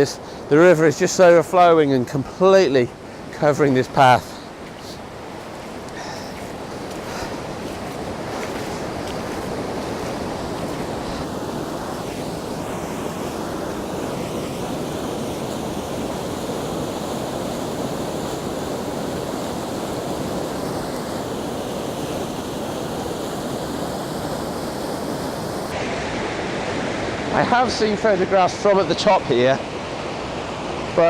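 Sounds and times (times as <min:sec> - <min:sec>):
waterfall rushing: 0:02.6 - 0:29.1.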